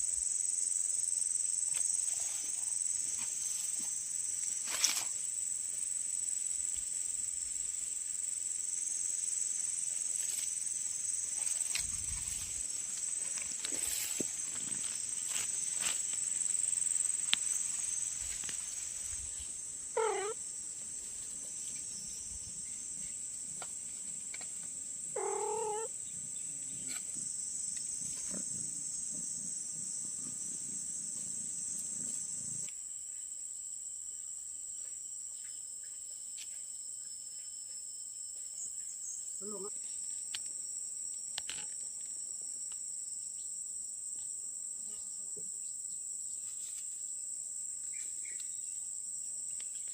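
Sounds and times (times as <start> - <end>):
insects chirring: 0.0 - 49.9
kitten meowing: 20.0 - 20.4, 25.2 - 25.9.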